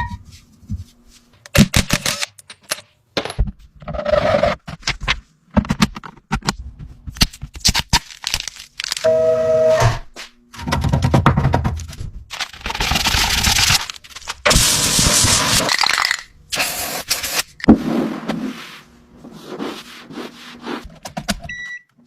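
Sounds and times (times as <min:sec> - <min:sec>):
scraping and hissing work sounds: 0:12.4 - 0:15.9, 0:16.5 - 0:21.3.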